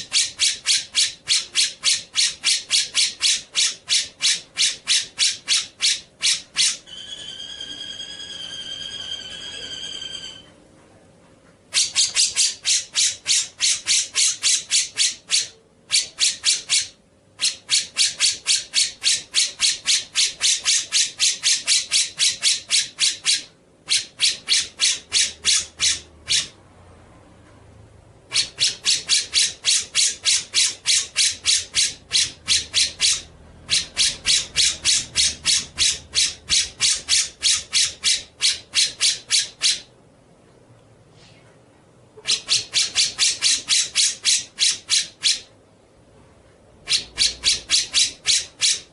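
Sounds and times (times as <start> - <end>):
bird rattling call: 0.0 - 7.2, 11.8 - 26.5, 28.3 - 39.9, 42.3 - 45.5, 46.9 - 48.9.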